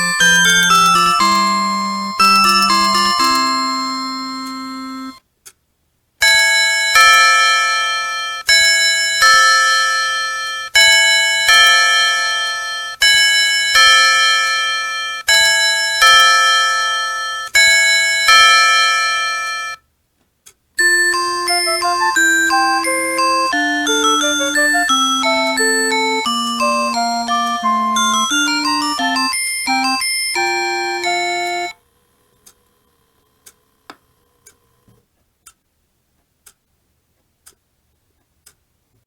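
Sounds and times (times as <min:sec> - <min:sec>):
clock melody: 0:00.0 - 0:05.2, 0:06.2 - 0:19.8, 0:20.8 - 0:31.8
electronic ding-dong chime: 0:00.0 - 0:05.2, 0:20.8 - 0:31.8.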